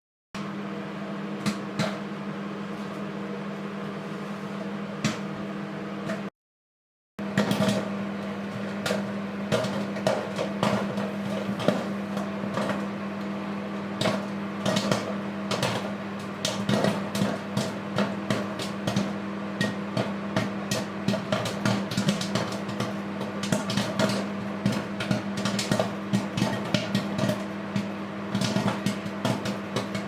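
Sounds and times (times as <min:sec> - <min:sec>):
microwave oven humming: 0:00.4 - 0:06.3, 0:07.2 - 0:30.0
popcorn popping: 0:01.3 - 0:02.2, 0:07.2 - 0:30.0.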